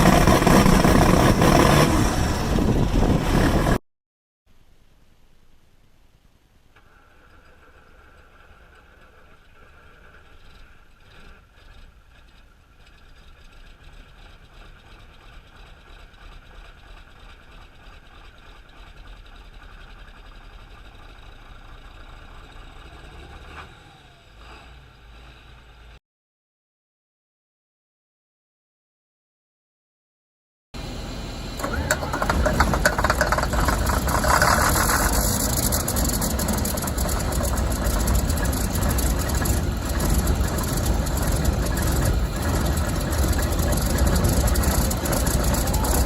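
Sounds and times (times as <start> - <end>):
tractor diesel engine running: 0.0 - 3.8, 8.0 - 23.3, 30.8 - 46.0
steady high whine: 30.8 - 46.0.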